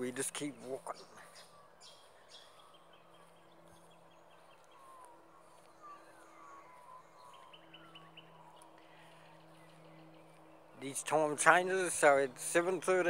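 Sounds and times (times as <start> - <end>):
faint low hum: 0.0 - 13.0
bird chirps and trill: 0.2 - 13.0.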